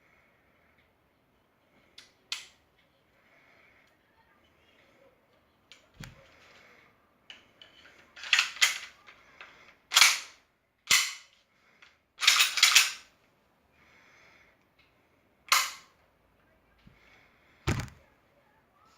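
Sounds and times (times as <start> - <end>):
pistol parts clacking: 7.3 - 13.1, 15.5 - 15.9.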